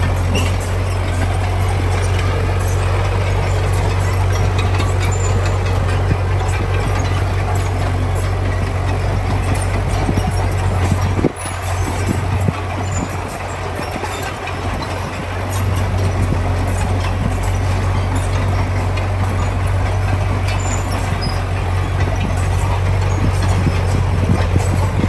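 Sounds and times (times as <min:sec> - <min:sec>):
clanking and rattling: 0:00.0 - 0:25.0
heavy machinery diesel engine: 0:00.0 - 0:25.0.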